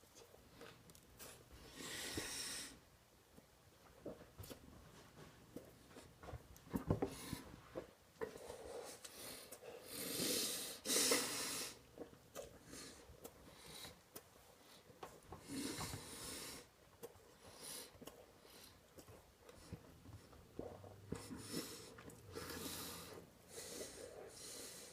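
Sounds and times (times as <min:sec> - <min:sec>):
man breathing through nose: 0:08.5 - 0:11.8, 0:21.2 - 0:24.9
wet chewing clicks: 0:11.9 - 0:16.1, 0:16.9 - 0:22.6.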